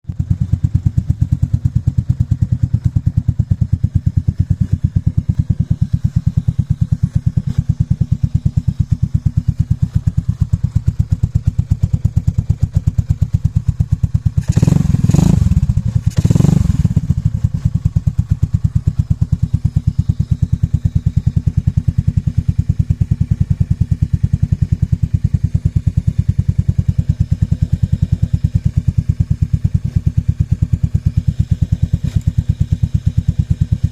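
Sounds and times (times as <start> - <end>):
motorcycle engine idling: 0.0 - 33.9
engine revving: 14.0 - 21.8, 26.3 - 33.9.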